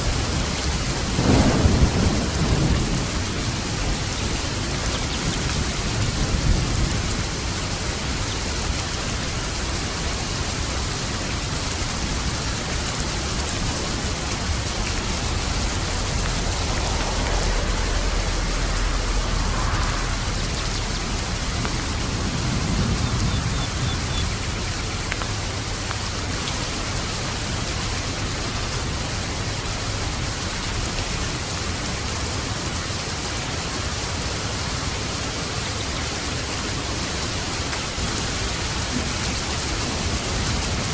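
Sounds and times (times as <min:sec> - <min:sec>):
steady rain: 0:00.0 - 0:40.9
distant thunder rumble: 0:00.1 - 0:09.3, 0:11.3 - 0:28.5.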